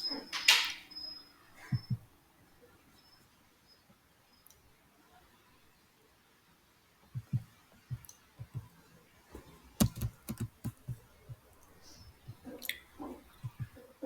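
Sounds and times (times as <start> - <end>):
soft taps and clicks: 7.2 - 8.7, 9.8 - 11.4.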